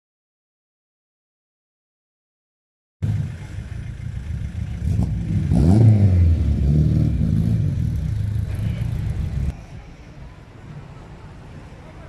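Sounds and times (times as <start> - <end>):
rally car engine revving: 3.0 - 9.5.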